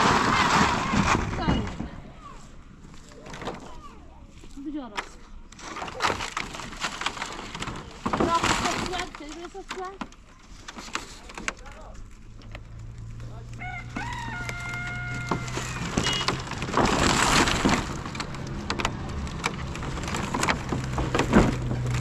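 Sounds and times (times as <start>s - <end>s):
rooster crowing: 13.6s - 16.0s
clicks and knocks: 13.9s - 22.0s.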